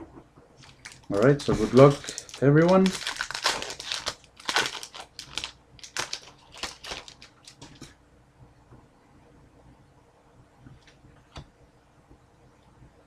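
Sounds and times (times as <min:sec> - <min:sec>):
foil wrapper tearing and crinkling: 0:00.6 - 0:07.6.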